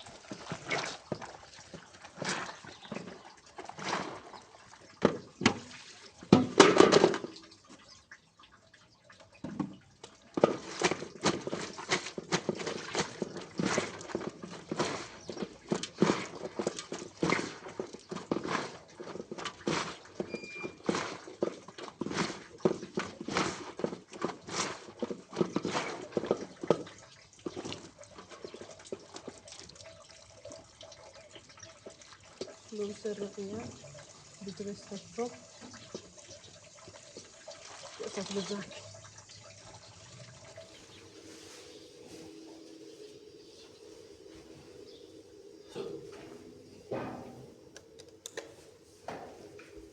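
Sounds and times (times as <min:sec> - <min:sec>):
horse hooves clopping: 0:40.2 - 0:49.9
rustling scrapes: 0:40.6 - 0:47.7, 0:48.5 - 0:49.9
knocking and clattering: 0:45.7 - 0:49.9.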